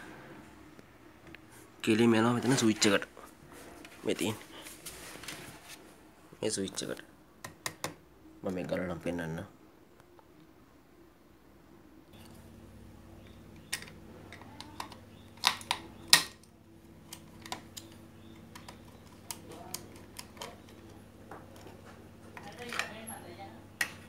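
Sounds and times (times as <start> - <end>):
steady low hum: 8.0 - 24.0.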